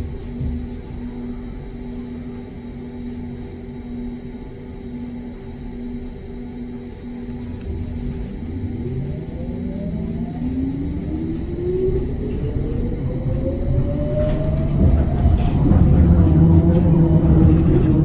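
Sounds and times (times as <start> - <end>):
tram motor whine rising: 0.0 - 18.0
wheels rumbling on rails: 7.4 - 18.0.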